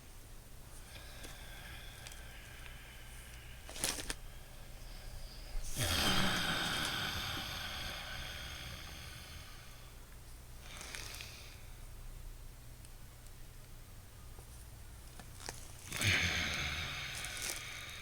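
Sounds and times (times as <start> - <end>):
noisy breathing through nose: 0.8 - 11.9, 15.8 - 18.0.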